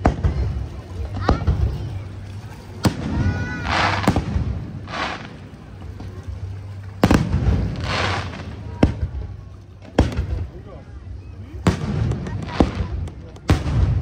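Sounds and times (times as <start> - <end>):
firework shells bursting: 2.8 - 5.4, 7.0 - 9.0.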